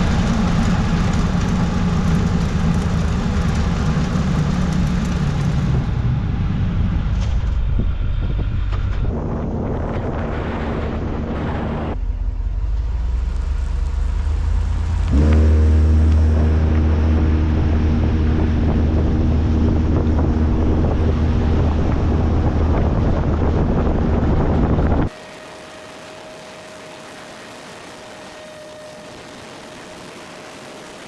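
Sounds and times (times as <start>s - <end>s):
truck engine running: 0.0s - 31.0s
steady multi-pitched hum: 14.4s - 31.0s.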